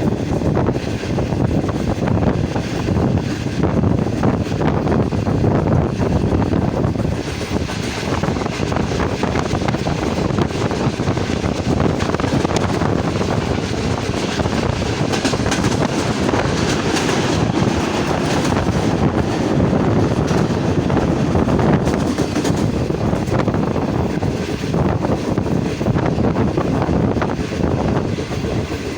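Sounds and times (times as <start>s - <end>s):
passenger train rumbling: 0.0s - 28.9s
wind buffeting microphone: 0.0s - 28.9s.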